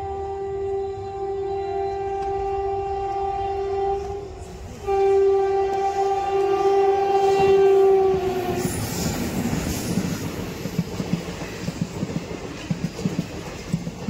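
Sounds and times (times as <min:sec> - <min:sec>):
train horn blast: 0:00.0 - 0:09.6
train rumble and wheel clatter: 0:00.0 - 0:14.0.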